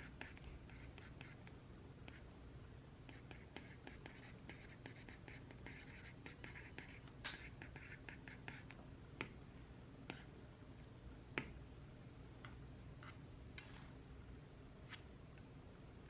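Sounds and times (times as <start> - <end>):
writing on paper: 0.0 - 2.2, 3.1 - 8.8, 10.1 - 10.3.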